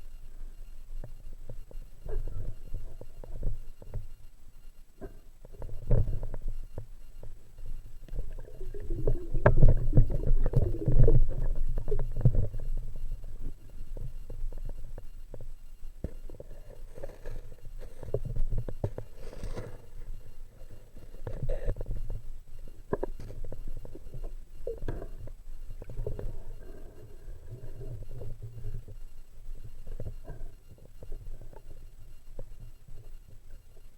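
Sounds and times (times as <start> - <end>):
low underwater rumble: 5.6 - 16.6
water movement: 7.2 - 15.3.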